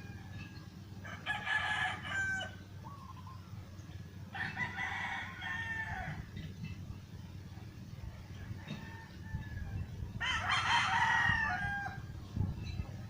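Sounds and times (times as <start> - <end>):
steady low hum: 0.0 - 13.0
bird calling: 2.4 - 4.0.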